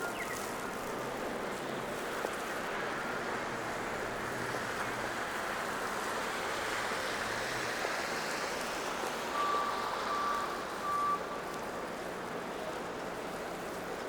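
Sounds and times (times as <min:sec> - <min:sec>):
city traffic hiss: 0:00.0 - 0:14.0
reversing alarm beeps: 0:09.3 - 0:11.3.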